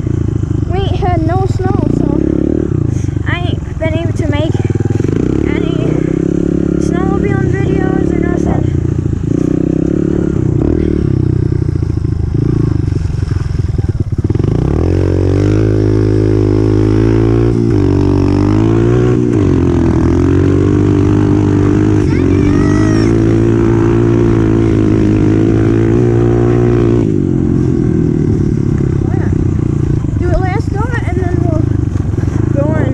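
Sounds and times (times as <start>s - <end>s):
dirt bike engine revving: 0.0s - 32.9s.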